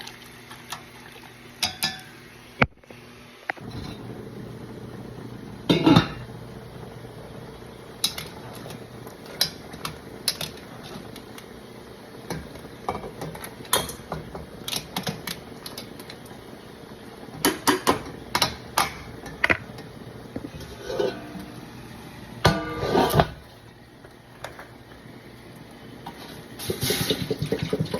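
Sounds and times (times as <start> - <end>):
low steady hum: 3.6 - 26.4
utensils clinking against dishes: 5.7 - 6.2, 20.5 - 21.5.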